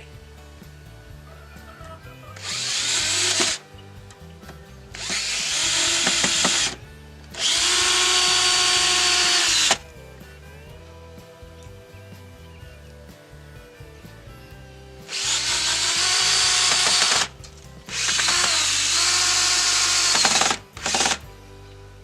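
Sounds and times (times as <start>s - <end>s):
background music: 0.0s - 22.0s
power drill winding up: 2.3s - 3.7s, 4.9s - 9.9s, 15.1s - 21.4s.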